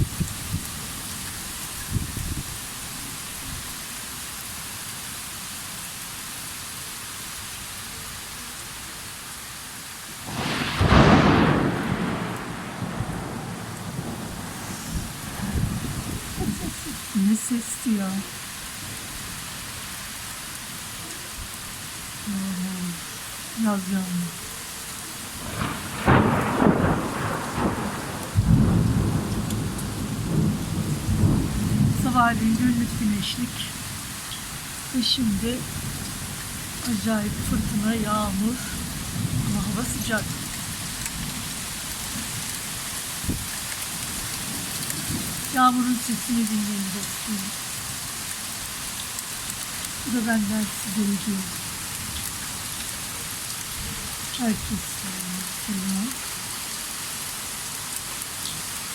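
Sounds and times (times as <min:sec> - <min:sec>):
steady rain falling: 0:00.0 - 0:58.9
thunder clap rumbling: 0:10.3 - 0:17.1, 0:25.4 - 0:33.1, 0:38.8 - 0:40.5.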